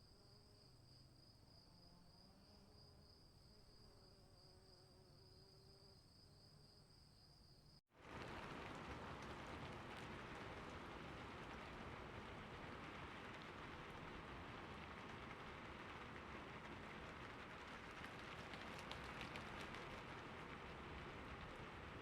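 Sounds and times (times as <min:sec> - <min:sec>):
steady rain: 0:07.9 - 0:22.0.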